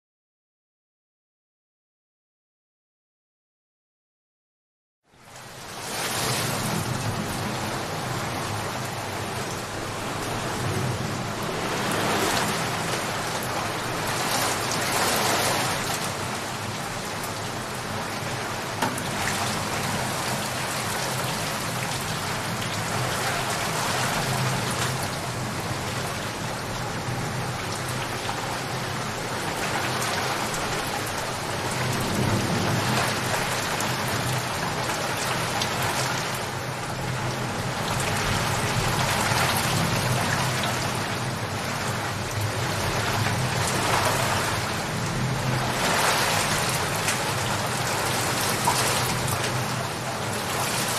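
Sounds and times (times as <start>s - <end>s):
heavy rain falling: 5.2s - 50.9s
low thunder rumbling: 6.4s - 15.8s, 30.3s - 36.0s.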